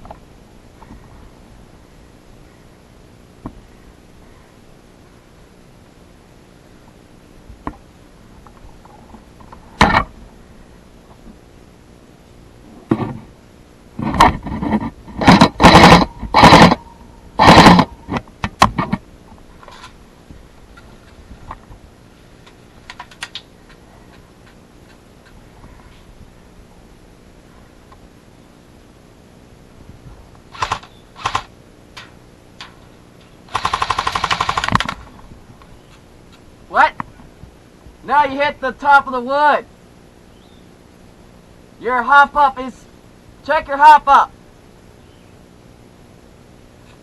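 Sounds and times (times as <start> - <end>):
airsoft gun firing: 15.2 - 16.8, 17.4 - 17.9, 30.5 - 31.5, 33.5 - 35.0.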